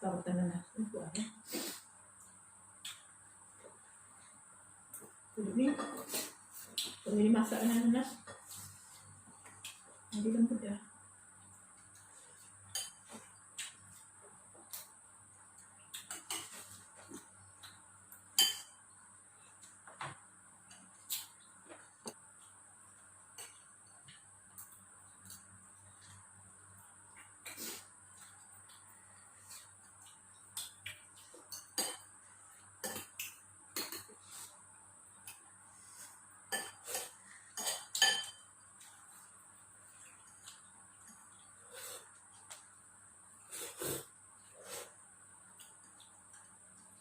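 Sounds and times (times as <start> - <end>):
cutlery clinking against a bowl: 12.7 - 13.8, 16.0 - 16.7, 18.3 - 18.8, 30.6 - 32.1, 32.8 - 34.2, 36.5 - 38.6
spoon clinking against a bowl: 18.4 - 18.8, 37.6 - 38.5.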